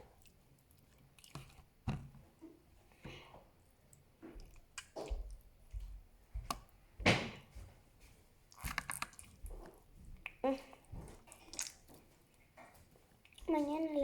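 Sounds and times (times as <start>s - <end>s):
slime squishing by hand: 8.4s - 13.9s.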